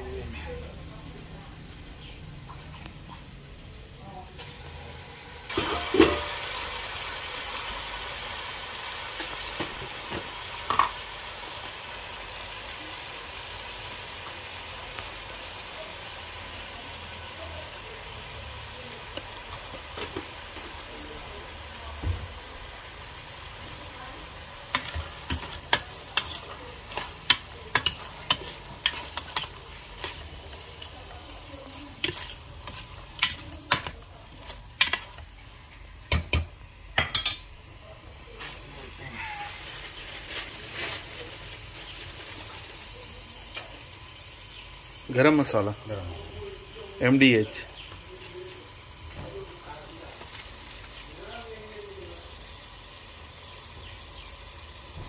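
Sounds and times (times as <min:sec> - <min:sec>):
food sizzling in a pot: 0:00.0 - 0:55.0
metal spoon clinking against pot: 0:24.7 - 0:30.2, 0:32.0 - 0:35.2, 0:36.1 - 0:37.5.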